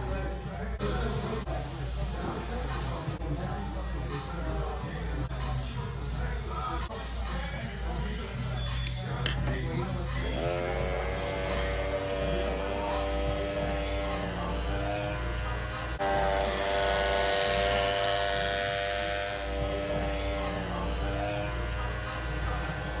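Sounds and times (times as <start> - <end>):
hair clipper buzzing: 10.2 - 23.0.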